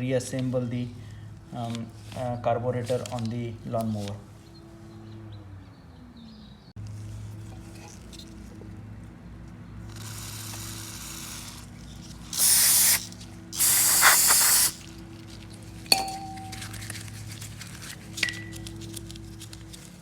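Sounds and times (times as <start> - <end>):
aerosol spray hissing: 10.0 - 11.6, 12.3 - 14.8
sharp metallic clink: 15.9 - 16.8.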